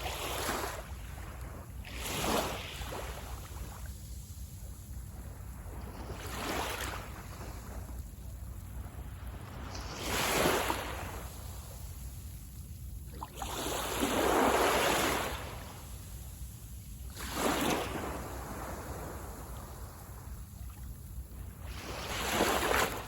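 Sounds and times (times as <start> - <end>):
sea waves breaking: 13.1 - 15.8, 17.1 - 20.3, 21.7 - 23.0.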